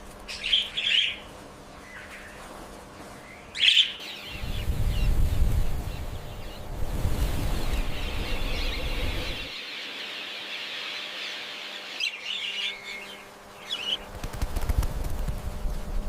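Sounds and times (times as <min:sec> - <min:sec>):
budgerigars twittering: 0:00.3 - 0:02.4, 0:03.2 - 0:14.0
low rumble: 0:04.4 - 0:09.6.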